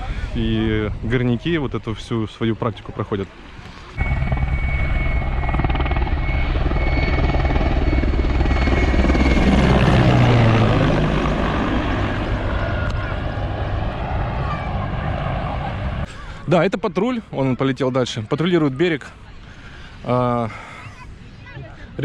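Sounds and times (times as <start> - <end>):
helicopter flying past: 3.9 - 16.1.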